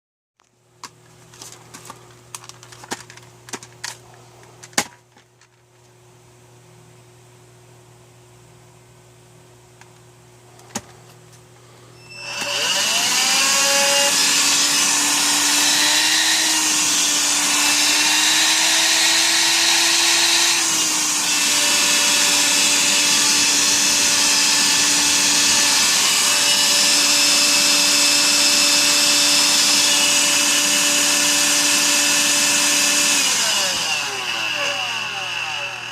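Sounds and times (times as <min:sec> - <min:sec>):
vacuum motor whine: 0:12.0 - 0:35.9.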